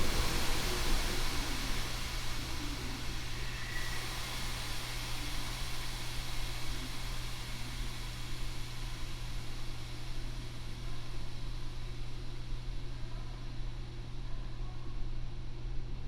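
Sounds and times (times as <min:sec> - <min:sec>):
train wheels rumbling on rails: 0:00.0 - 0:11.6.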